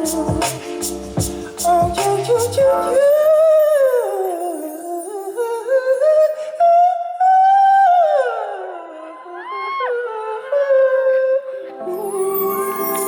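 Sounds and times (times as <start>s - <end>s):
man singing wordless vocal: 0.0s - 13.0s.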